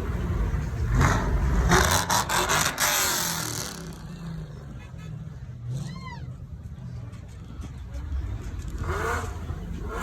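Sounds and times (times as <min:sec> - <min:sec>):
car engine revving: 0:00.0 - 0:04.5, 0:08.4 - 0:10.0.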